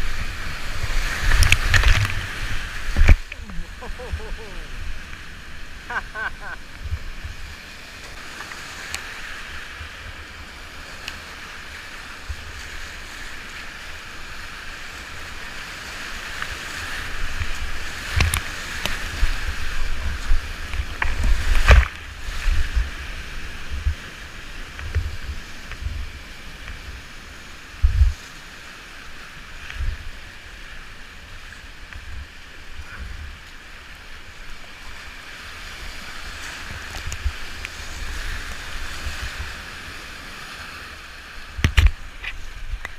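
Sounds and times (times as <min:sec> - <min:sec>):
river rapids rushing: 0:00.0 - 0:09.7.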